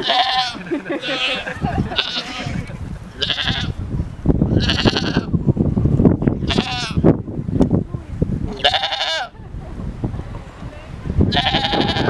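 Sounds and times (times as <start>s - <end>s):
young goats bleating: 0.0s - 3.8s, 4.5s - 5.4s, 6.4s - 7.0s, 8.5s - 9.4s, 11.3s - 12.0s.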